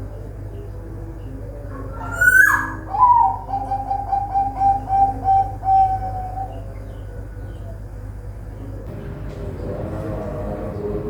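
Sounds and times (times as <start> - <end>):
steady low hum: 0.0 - 11.0
dove cooing: 1.3 - 7.9.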